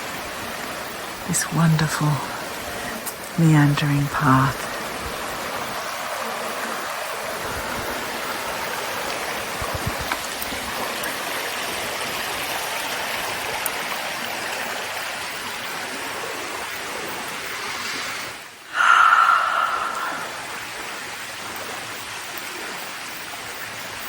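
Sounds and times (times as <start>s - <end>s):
creek rushing: 4.4s - 22.0s.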